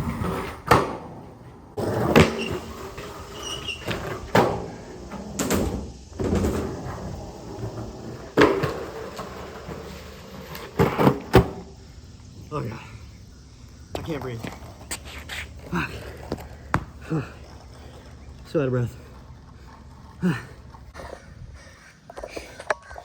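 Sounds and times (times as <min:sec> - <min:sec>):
skateboard clacking on ground: 0:00.0 - 0:11.8, 0:13.9 - 0:21.0
skateboard wheels rolling on concrete: 0:00.0 - 0:23.0.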